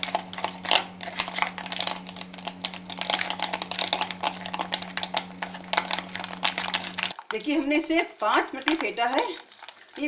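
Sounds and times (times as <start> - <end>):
ice cubes clicking against bowl: 0.0 - 7.6.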